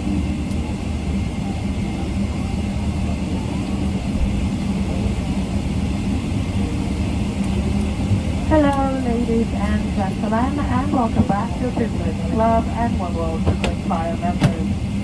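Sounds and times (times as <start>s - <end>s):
aircraft cabin hum and rush: 0.0s - 15.0s
faint voices: 8.2s - 14.8s.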